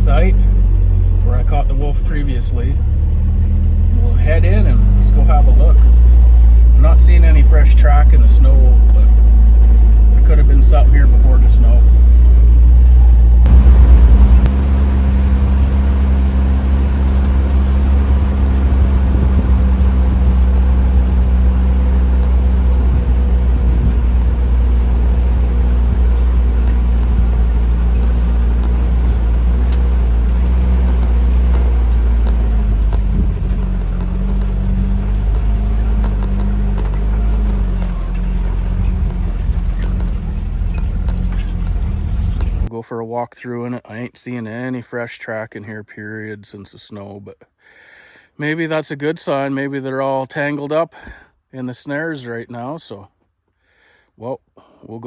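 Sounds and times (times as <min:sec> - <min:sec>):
vehicle engine humming while driving: 0:00.0 - 0:42.7.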